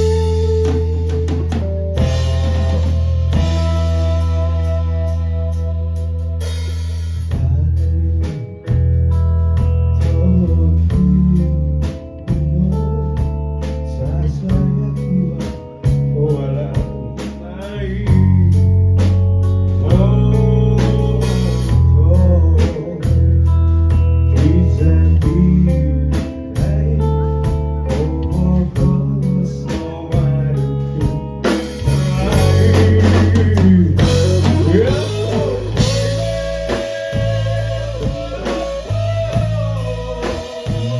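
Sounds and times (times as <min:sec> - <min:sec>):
lead guitar with bending notes: 0:00.0 - 0:40.9
live rock band playing: 0:00.0 - 0:40.9.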